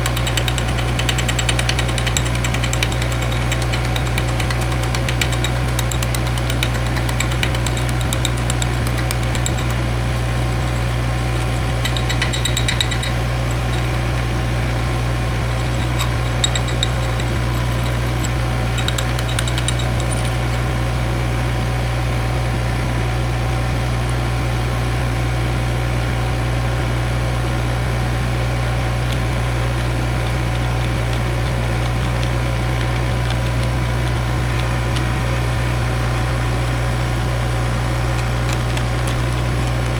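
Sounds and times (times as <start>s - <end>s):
engine idling: 0.0s - 21.3s.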